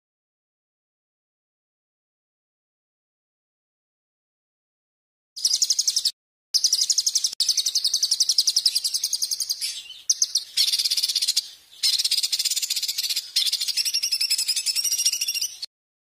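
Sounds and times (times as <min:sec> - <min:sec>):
songbird trilling: 0:05.4 - 0:15.7.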